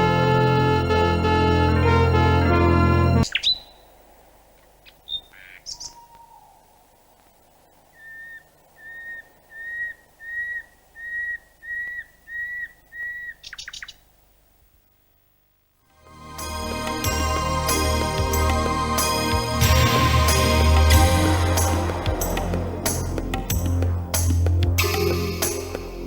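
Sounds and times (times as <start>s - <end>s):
bird chirping and whistling: 8.0s - 13.9s.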